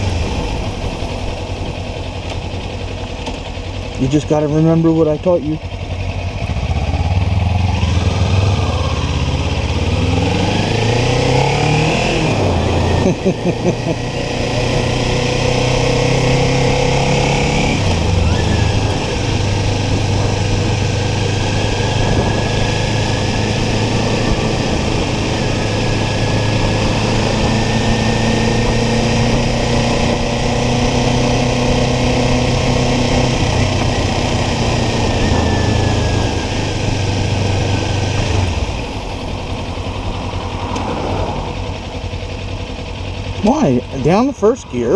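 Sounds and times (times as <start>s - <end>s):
motorcycle engine accelerating: 0.0s - 44.9s
wind rush on microphone: 17.9s - 31.0s.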